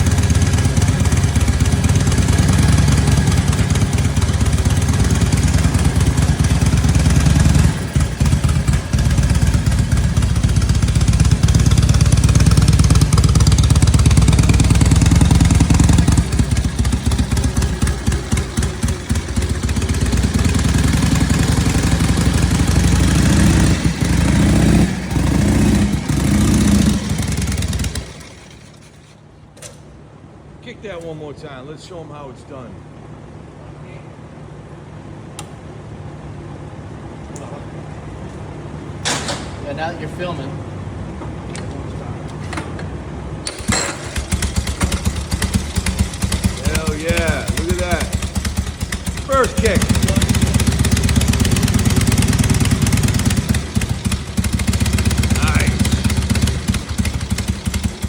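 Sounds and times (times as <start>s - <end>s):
motorcycle engine revving: 0.0s - 29.3s, 43.4s - 58.0s.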